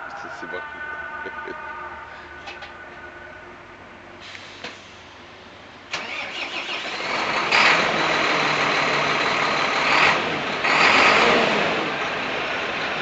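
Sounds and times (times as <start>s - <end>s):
diesel truck engine starting: 4.1s - 13.0s.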